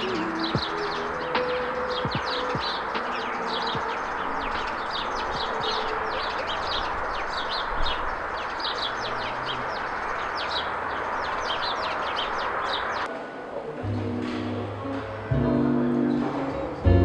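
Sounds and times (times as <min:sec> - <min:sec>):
small birds chirping: 0:00.0 - 0:13.1
steady background hiss: 0:00.0 - 0:17.0.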